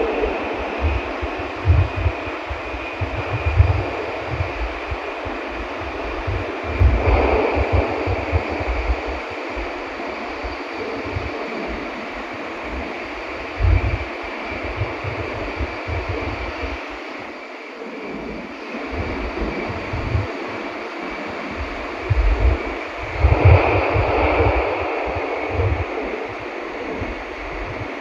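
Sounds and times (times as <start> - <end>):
faint steady whine: 0.0 - 28.0.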